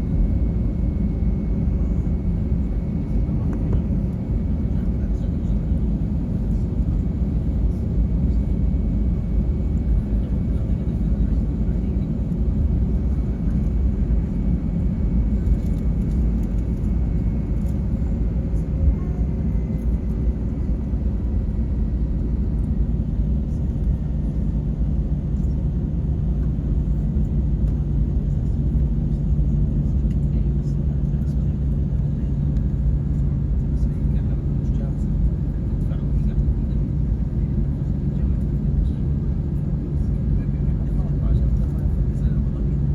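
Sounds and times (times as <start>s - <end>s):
jet engines rumbling in cabin: 0.0s - 42.9s.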